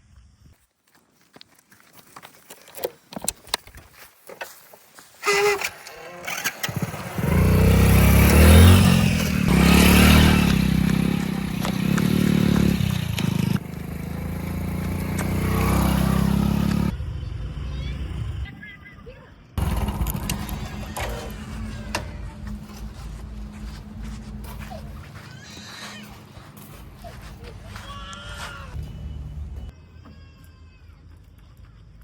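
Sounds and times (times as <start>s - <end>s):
diesel engine running: 6.3s - 18.5s, 19.6s - 29.7s.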